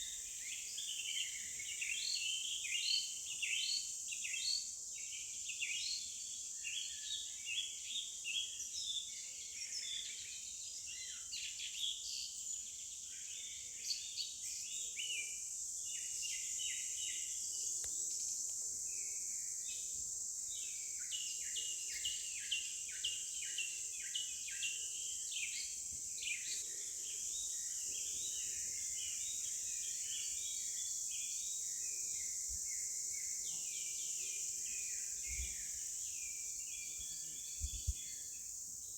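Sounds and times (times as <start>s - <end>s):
small birds chirping: 15.8s - 38.9s.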